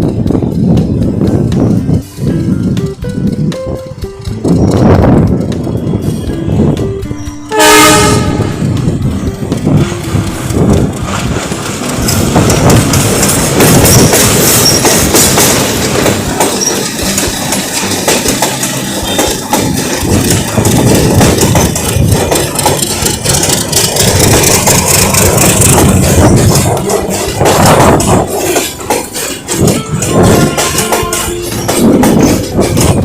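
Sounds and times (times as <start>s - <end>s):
train rumbling along tracks: 0.0s - 33.0s
wheels clattering over rail joints: 0.0s - 33.0s.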